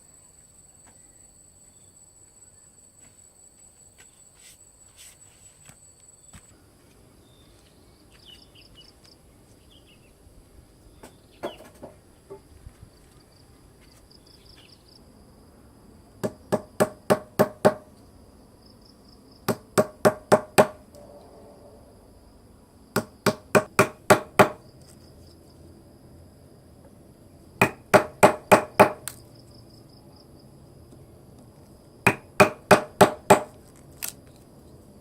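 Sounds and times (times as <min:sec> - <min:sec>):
hand tool hammering: 0:16.2 - 0:17.9, 0:19.5 - 0:20.8, 0:23.0 - 0:24.6, 0:27.6 - 0:29.2, 0:32.1 - 0:33.6.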